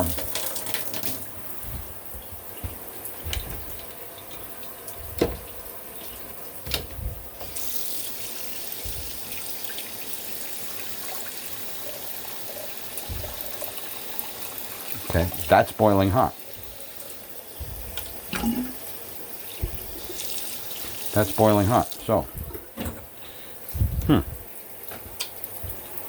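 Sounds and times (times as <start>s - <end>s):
shower water running: 0.0s - 26.0s.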